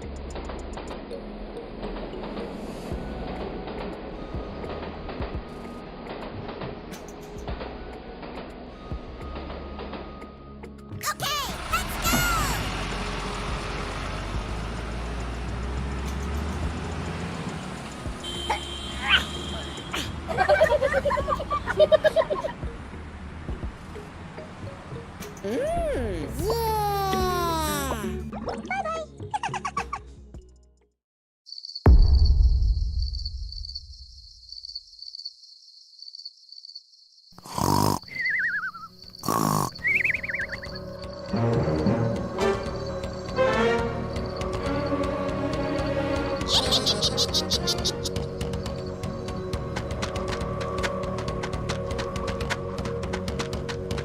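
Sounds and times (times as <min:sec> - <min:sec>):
deep boom: 0:31.9 - 0:34.4.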